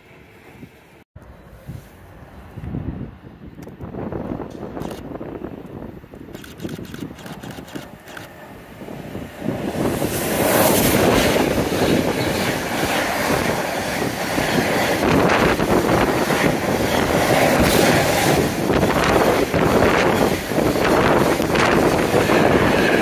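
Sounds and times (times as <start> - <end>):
train passing close by: 7.8 - 23.0.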